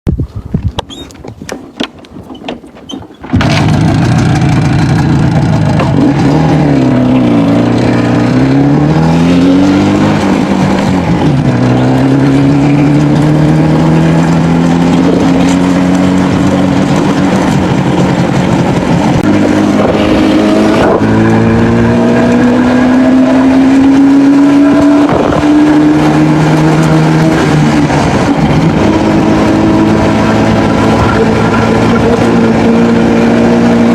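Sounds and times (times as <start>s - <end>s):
airplane engine noise: 0.8s - 33.9s.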